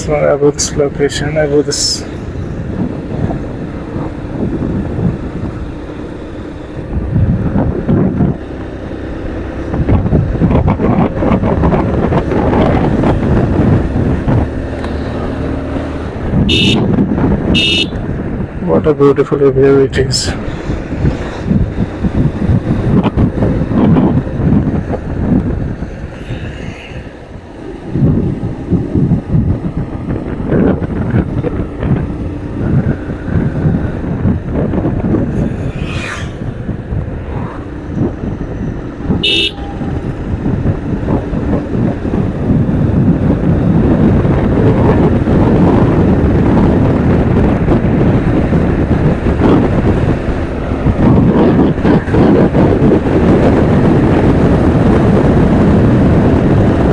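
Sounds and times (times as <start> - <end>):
road traffic: 0.0 - 56.9
wind rushing over microphone: 0.0 - 56.9
vehicle horn toot: 16.5 - 18.0, 39.2 - 40.2.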